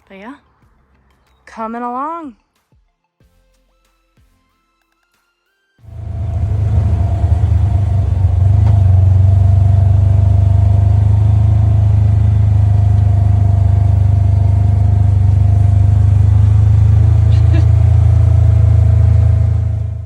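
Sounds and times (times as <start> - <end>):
engine rumbling: 5.9 - 20.0.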